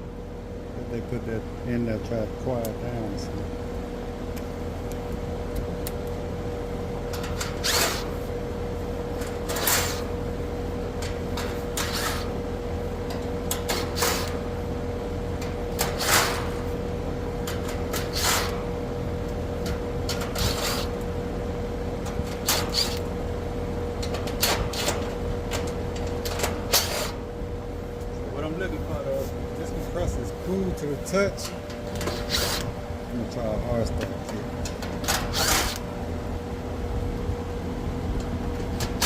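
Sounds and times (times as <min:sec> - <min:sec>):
steady hum: 0:00.0 - 0:39.0
hand tools scraping and clanking: 0:07.1 - 0:08.3, 0:09.2 - 0:10.2, 0:10.9 - 0:12.4, 0:13.0 - 0:14.5, 0:15.4 - 0:16.8, 0:17.4 - 0:18.8, 0:19.6 - 0:21.0, 0:22.0 - 0:23.1, 0:24.0 - 0:27.3, 0:31.3 - 0:32.8, 0:33.8 - 0:35.9.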